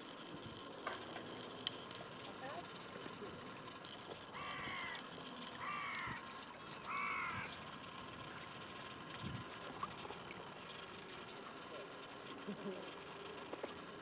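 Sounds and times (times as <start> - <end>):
bird calling: 4.3 - 7.6.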